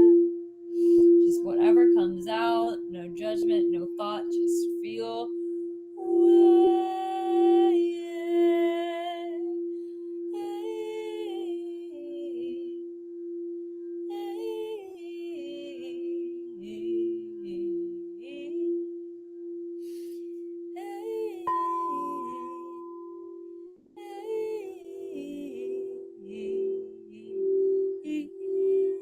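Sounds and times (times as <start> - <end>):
held drone tone: 4.8 - 29.0
wordless singing: 20.8 - 29.0.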